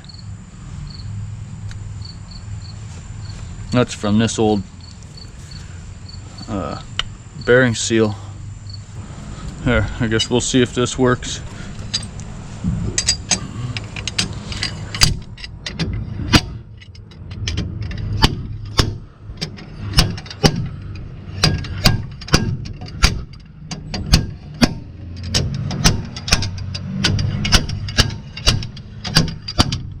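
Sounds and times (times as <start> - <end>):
steady low hum: 0.0 - 30.0
hammer striking metal: 19.8 - 20.8, 21.4 - 29.9.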